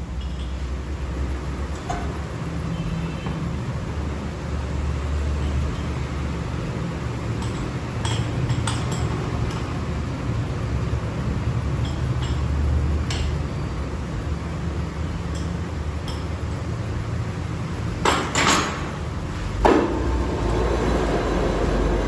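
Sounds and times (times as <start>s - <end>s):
machinery humming: 19.2s - 22.0s.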